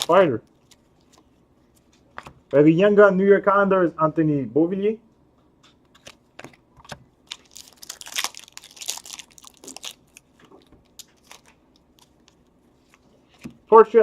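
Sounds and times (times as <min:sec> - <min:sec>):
plastic wrapper tearing and crinkling: 0:00.0 - 0:01.2, 0:07.2 - 0:13.0.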